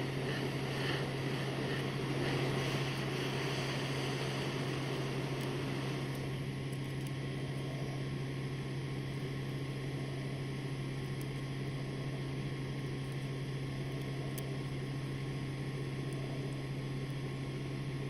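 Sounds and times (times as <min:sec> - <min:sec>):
constant hiss: 0:00.0 - 0:08.2
steady low hum: 0:00.0 - 0:18.0.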